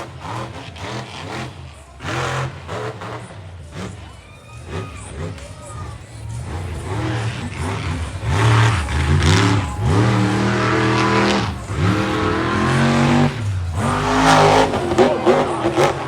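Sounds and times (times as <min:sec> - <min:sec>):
monster truck engine revving: 0:00.0 - 0:16.0.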